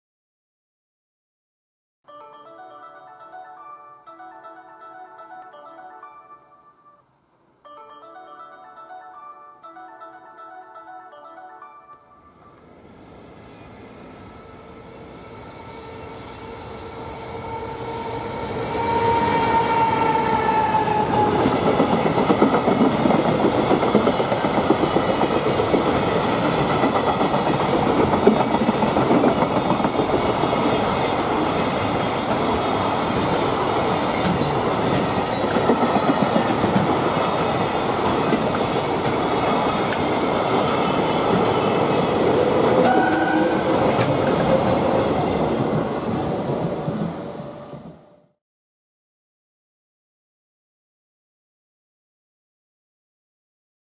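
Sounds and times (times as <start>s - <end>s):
electric locomotive motor whine: 12.6s - 21.5s.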